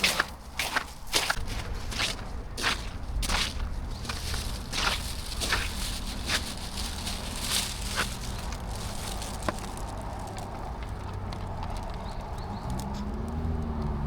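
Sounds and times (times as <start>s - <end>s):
steady low rumble: 0.0s - 11.9s
footsteps squelching through mud: 0.0s - 13.9s.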